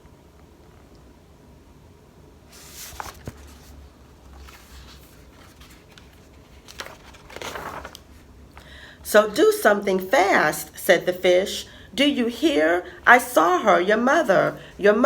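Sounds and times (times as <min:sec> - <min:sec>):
paper pages rustling: 0:02.5 - 0:08.3.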